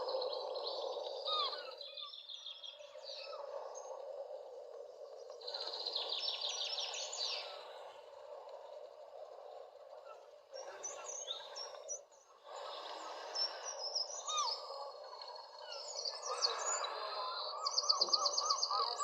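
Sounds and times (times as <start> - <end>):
birds chirping and singing: 0.0 - 3.9, 5.4 - 7.7, 10.6 - 12.0, 12.6 - 19.0.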